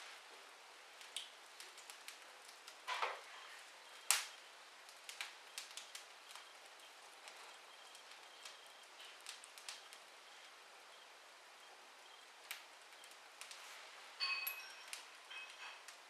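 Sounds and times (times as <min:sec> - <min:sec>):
fire hissing: 0:00.0 - 0:16.0
wood fire crackling: 0:00.0 - 0:16.0
sharp pop from fire: 0:04.1 - 0:04.4.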